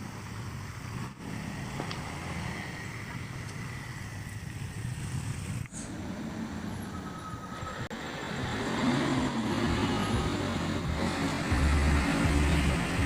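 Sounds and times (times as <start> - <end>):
faint high whine: 0.0 - 8.5
truck engine rumble: 0.0 - 13.0.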